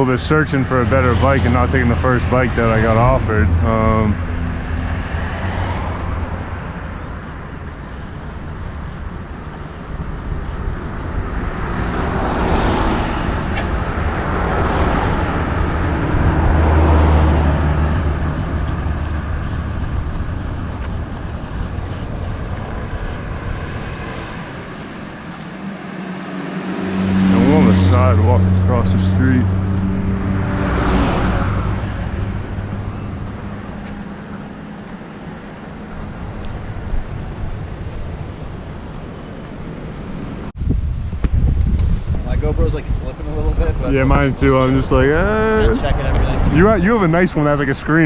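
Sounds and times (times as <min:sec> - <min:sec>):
vehicles passing on street: 0:00.0 - 0:48.0.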